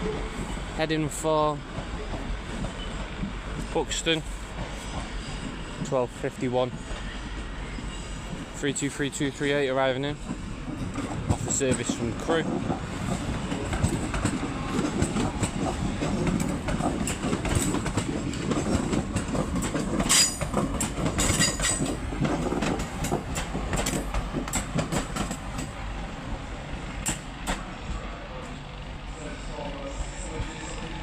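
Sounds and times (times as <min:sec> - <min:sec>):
high-pitched train squeals: 0:06.7 - 0:08.2, 0:29.2 - 0:31.0
train wheels clicking over rail joints: 0:08.2 - 0:25.8, 0:27.0 - 0:27.7.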